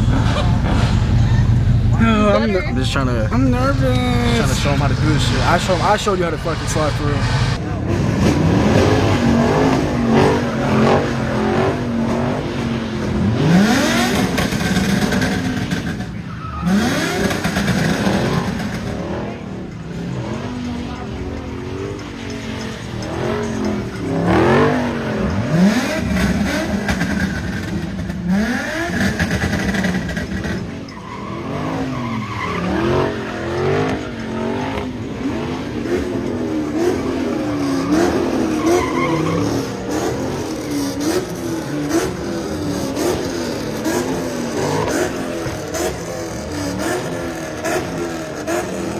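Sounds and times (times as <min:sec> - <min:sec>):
tyres squealing and hissing: 0:00.0 - 0:05.8, 0:06.4 - 0:07.6
car engine revving: 0:00.0 - 0:16.0, 0:31.3 - 0:48.9.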